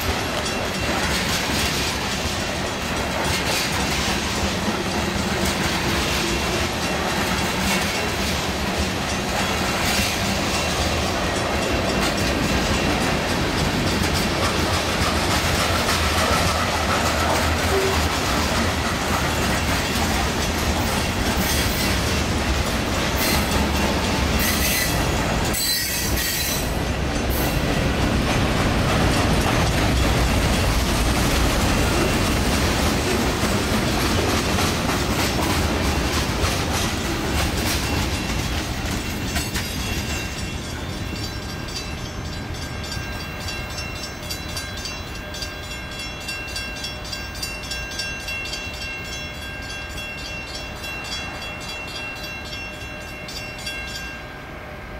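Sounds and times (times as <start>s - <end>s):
train wheels clicking on rails: 0.0s - 54.2s
high wheel squeal: 24.4s - 26.7s.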